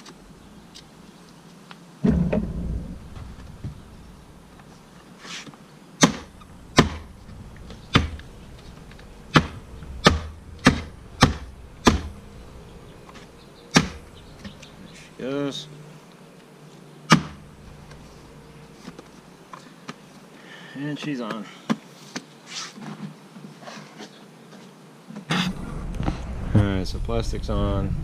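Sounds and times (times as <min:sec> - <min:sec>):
heavy thump: 0:02.0 - 0:04.4, 0:06.0 - 0:12.5
sharp knocks on plastic bodywork: 0:06.0 - 0:08.4, 0:09.3 - 0:12.2, 0:13.7 - 0:14.6, 0:17.1 - 0:17.4.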